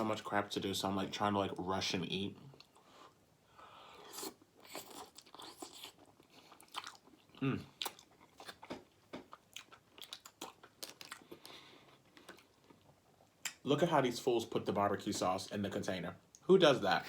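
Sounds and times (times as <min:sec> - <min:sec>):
chewing with wet mouth smacks: 0:04.2 - 0:13.6.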